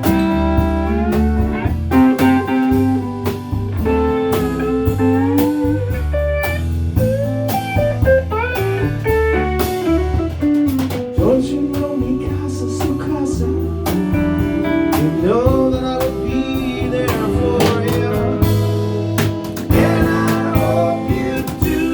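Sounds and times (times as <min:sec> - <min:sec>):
lead guitar solo: 0:00.0 - 0:11.1
bass guitar: 0:00.0 - 0:21.9
drum kit: 0:00.0 - 0:21.9.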